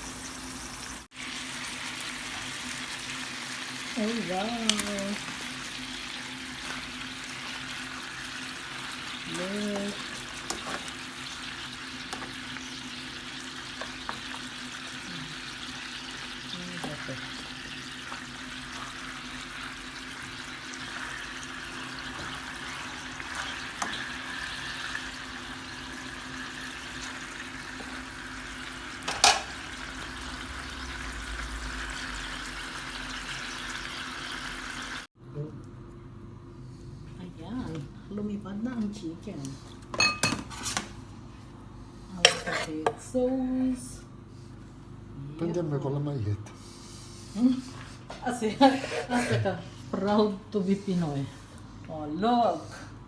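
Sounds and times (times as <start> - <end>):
chicken sizzling in a pan: 0.0 - 35.1.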